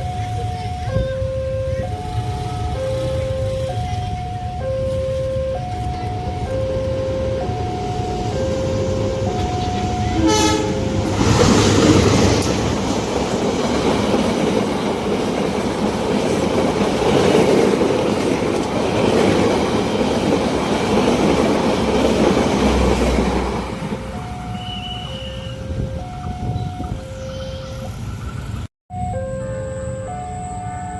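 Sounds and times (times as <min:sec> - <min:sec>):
two-tone level crossing alarm: 0:00.0 - 0:14.6, 0:23.4 - 0:28.1, 0:28.9 - 0:30.9
train wheels clattering over rails: 0:05.7 - 0:25.2
train horn blast: 0:06.6 - 0:12.5.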